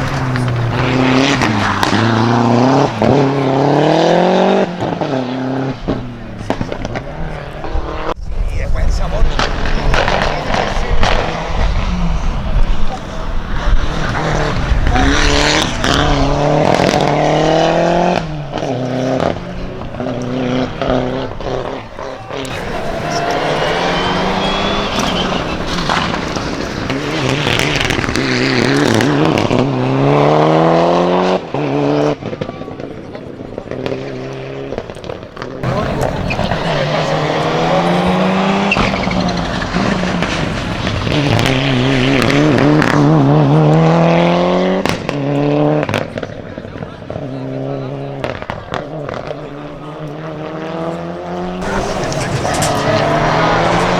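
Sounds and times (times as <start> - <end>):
sharp exhaust pops: 0.0 - 8.2, 9.0 - 29.9, 35.6 - 43.3, 49.0 - 53.9
race car engine at full throttle: 0.0 - 53.9.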